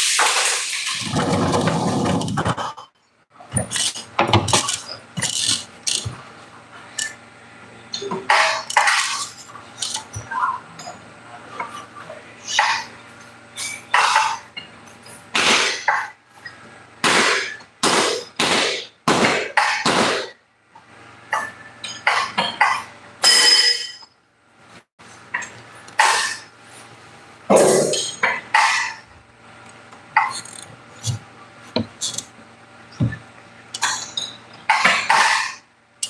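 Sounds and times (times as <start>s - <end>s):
knocks and clattering scrapes: 0.9s - 6.3s.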